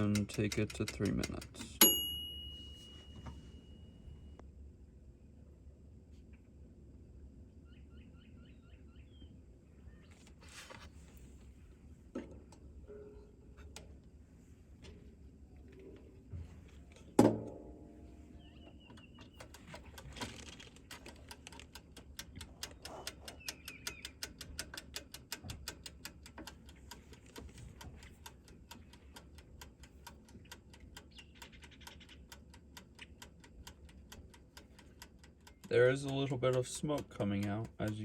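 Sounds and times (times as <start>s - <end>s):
dial timer ticking: 0.0s - 2.7s, 20.8s - 38.0s.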